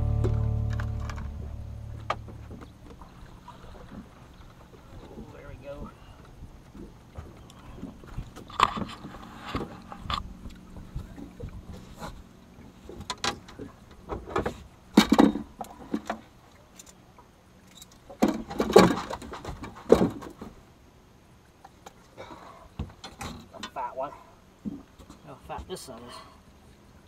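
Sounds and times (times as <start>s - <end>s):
faint steady hum: 0.0s - 27.0s
knocks and thumps on boat deck: 0.1s - 4.1s, 18.2s - 20.6s.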